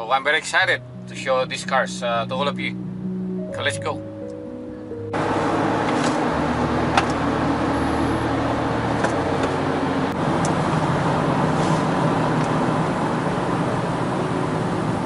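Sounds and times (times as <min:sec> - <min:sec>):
low engine hum: 0:00.0 - 0:15.0
tyre and road noise: 0:05.1 - 0:15.0.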